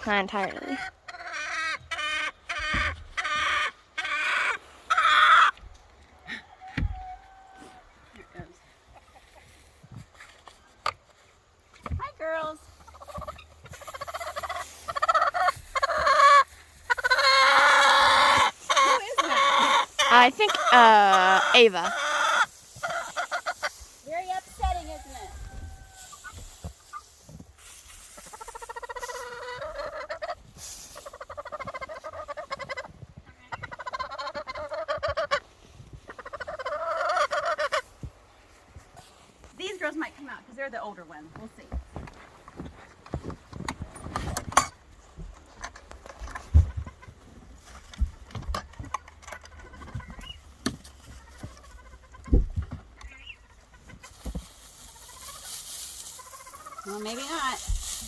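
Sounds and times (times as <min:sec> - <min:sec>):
hens clucking: 0:00.1 - 0:11.0, 0:11.6 - 0:39.1, 0:42.4 - 0:58.0
poultry calling: 0:00.4 - 0:05.6, 0:12.8 - 0:27.1, 0:28.0 - 0:38.1, 0:48.6 - 0:58.0
knocks and thumps: 0:52.2 - 0:53.0.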